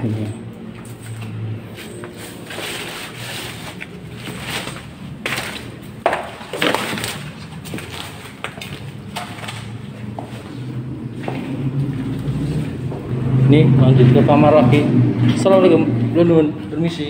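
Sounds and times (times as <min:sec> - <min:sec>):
footsteps crunching on debris: 0:00.7 - 0:13.1.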